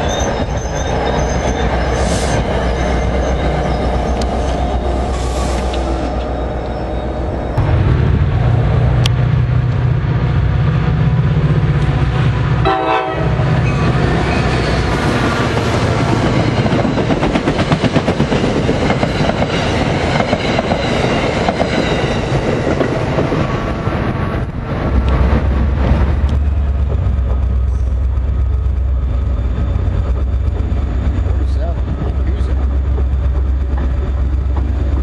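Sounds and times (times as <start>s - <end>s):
diesel locomotive drone: 0.0s - 35.0s
train cars clacking past: 0.0s - 35.0s
train horn blast: 12.6s - 13.8s.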